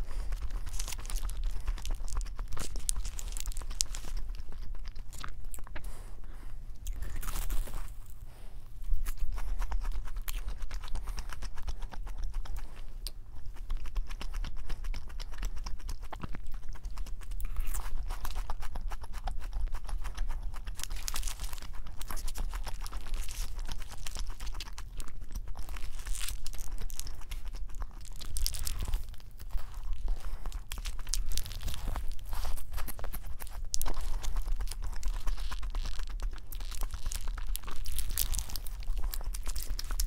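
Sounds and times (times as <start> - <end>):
paper wrapper crackling: 0.0 - 4.8, 20.7 - 40.0
chewing and crunching: 0.0 - 40.0.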